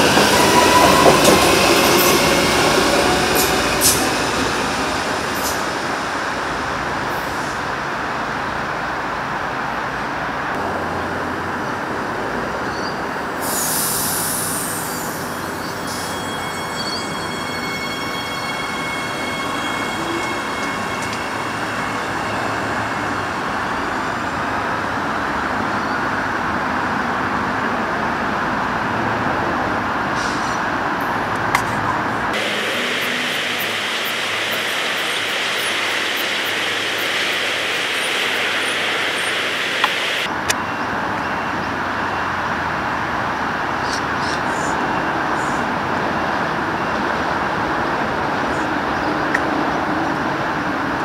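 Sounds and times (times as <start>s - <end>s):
train electric whine: 0.0s - 7.8s, 13.4s - 26.0s, 32.3s - 42.4s
train rumbling past: 0.0s - 51.0s.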